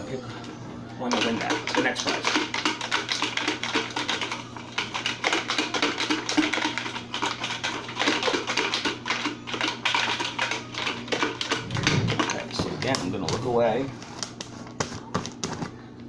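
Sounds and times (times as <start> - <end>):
container being shaken rattling: 1.1 - 13.6
steady low hum: 11.5 - 14.7.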